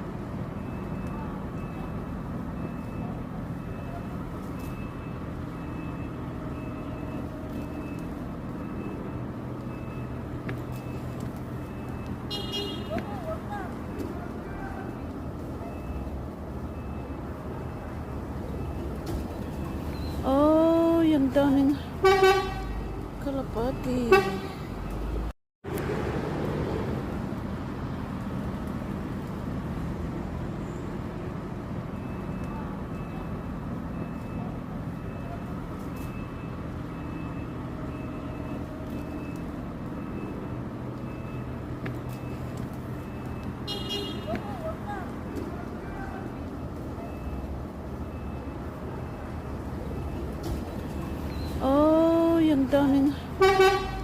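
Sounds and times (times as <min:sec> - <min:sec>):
road traffic rumble: 0:00.0 - 0:54.0
vehicle engine humming: 0:00.0 - 0:54.0
faint high beeps: 0:00.6 - 0:12.2, 0:14.9 - 0:18.9, 0:19.5 - 0:20.5.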